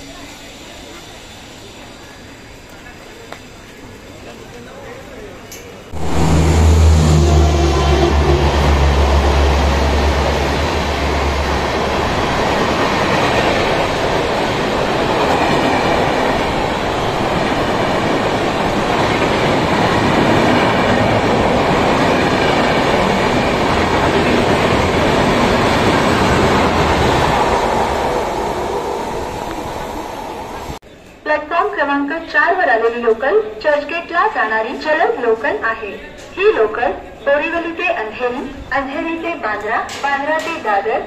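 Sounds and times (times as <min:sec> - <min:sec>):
locomotive low hum: 0:00.0 - 0:30.8
train wheels rushing on rails: 0:00.0 - 0:30.8.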